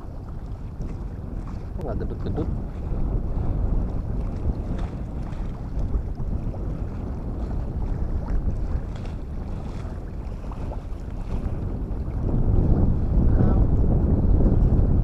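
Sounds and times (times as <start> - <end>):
waves washing in: 0.0 - 15.0
wind buffeting microphone: 0.0 - 15.0.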